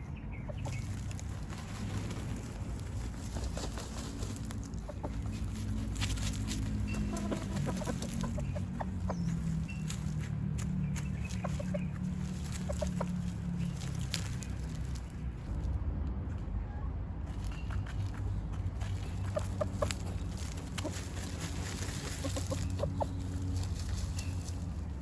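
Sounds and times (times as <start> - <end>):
scratchy rustles of dirt: 0.0 - 15.8, 17.3 - 25.0
chickens clucking softly: 4.7 - 10.1, 18.8 - 24.3.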